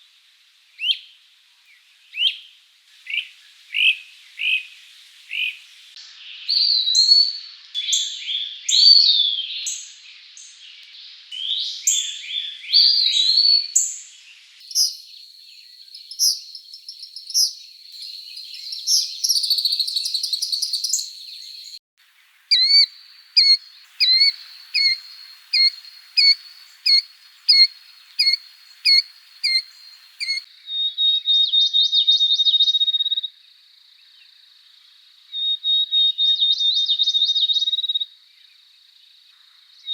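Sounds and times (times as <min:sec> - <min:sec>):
bird chirping: 0:14.6 - 0:33.3
bird whistling high phrases: 0:14.7 - 0:15.1, 0:15.9 - 0:21.8, 0:22.5 - 0:33.2
buzzy bird trill: 0:14.7 - 0:30.5.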